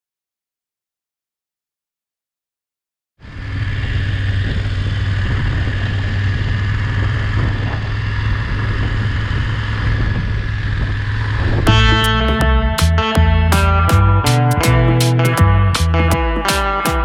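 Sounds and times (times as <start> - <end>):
vehicle engine and road noise: 3.2 - 16.2.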